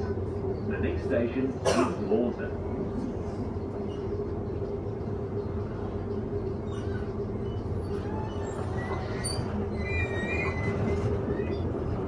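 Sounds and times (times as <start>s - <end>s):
train running with low rumble: 0.0s - 12.0s
faint wheel squeals: 6.6s - 11.7s.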